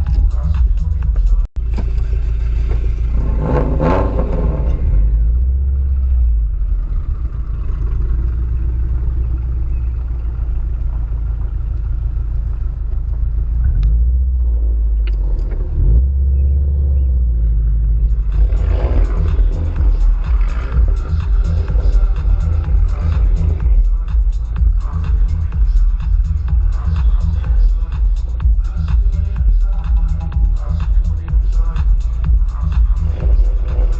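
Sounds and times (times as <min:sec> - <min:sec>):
car engine exhaust rumbling: 0:00.0 - 0:33.9.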